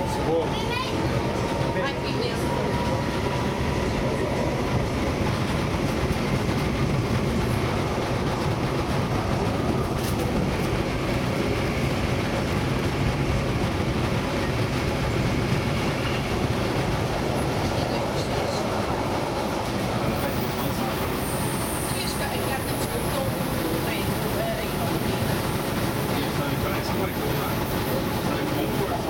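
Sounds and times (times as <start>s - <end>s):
train wheels on rail: 0.0s - 29.0s.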